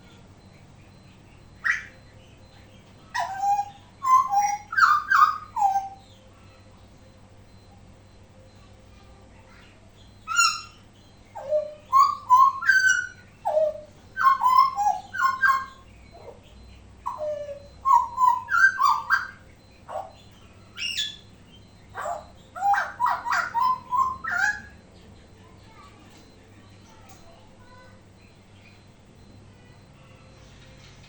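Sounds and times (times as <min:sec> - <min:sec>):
faint steady hum: 0:00.0 - 0:31.0
bird singing whistled notes: 0:10.2 - 0:24.8.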